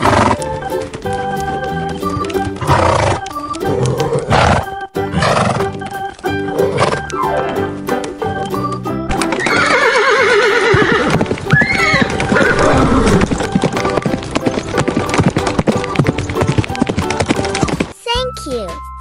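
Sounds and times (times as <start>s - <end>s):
horse whinnying: 0.0s - 0.4s, 2.6s - 5.7s, 6.6s - 7.5s, 9.2s - 13.4s
hooves clip-clopping: 0.0s - 18.0s.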